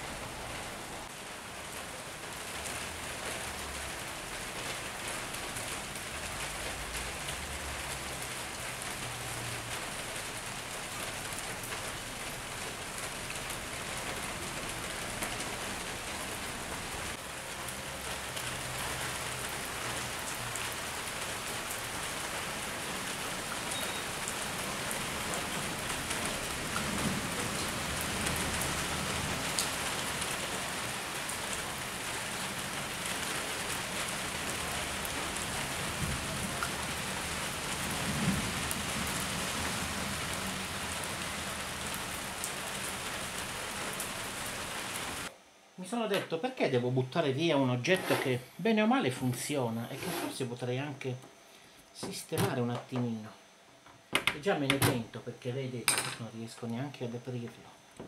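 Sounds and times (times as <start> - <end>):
rain on wet ground: 0.0 - 45.3.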